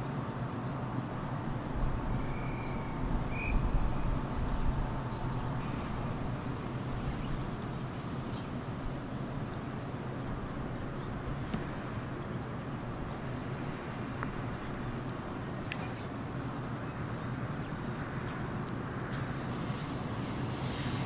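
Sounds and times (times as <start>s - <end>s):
low outdoor rumble: 0.0s - 21.0s
bird chirp: 2.2s - 4.5s.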